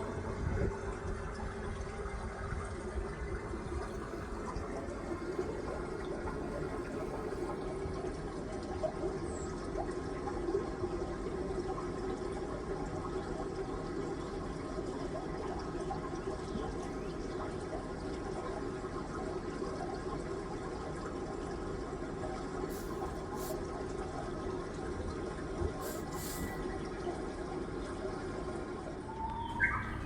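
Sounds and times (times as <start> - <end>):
running water splashing: 3.4 - 7.7, 22.7 - 23.8, 25.2 - 26.9, 29.1 - 30.0.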